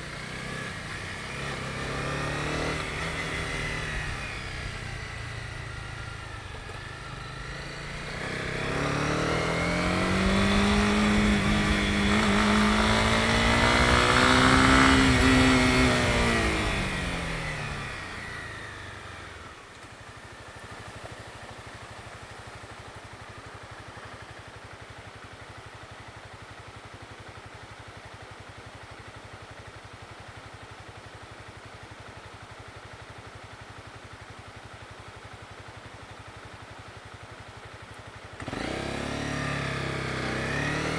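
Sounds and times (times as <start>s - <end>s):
motorcycle engine revving: 0.0s - 22.3s, 38.4s - 40.9s
rush of riding: 0.0s - 24.5s, 38.4s - 40.9s
motorcycle engine idling: 0.0s - 40.9s.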